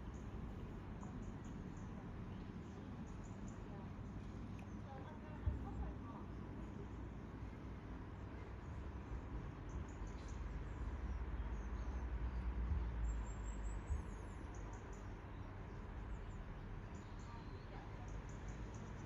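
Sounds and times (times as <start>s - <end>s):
small birds chirping: 0.0s - 19.0s
low rumble: 5.5s - 14.5s.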